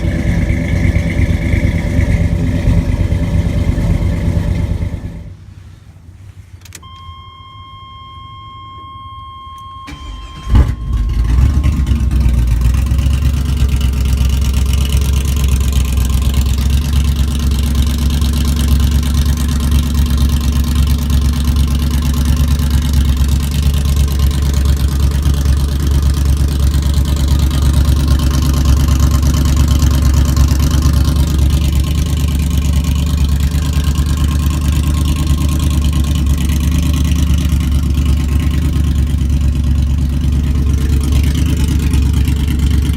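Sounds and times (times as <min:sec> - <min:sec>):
car engine starting and idling: 0:00.0 - 0:42.9
electronic tone: 0:06.8 - 0:12.1.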